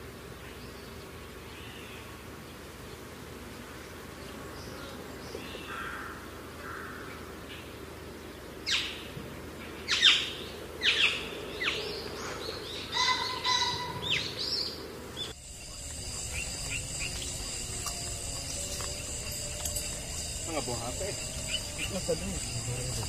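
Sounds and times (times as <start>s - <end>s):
low outdoor hum: 0.0s - 23.0s
bird chirping: 6.9s - 23.0s.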